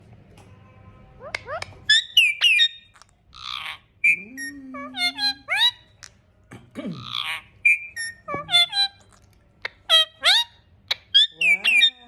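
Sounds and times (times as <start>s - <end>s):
parrot whistles and chirps: 1.2s - 6.0s, 7.2s - 12.0s
parrot raspy squawks: 1.2s - 6.2s, 6.9s - 12.0s.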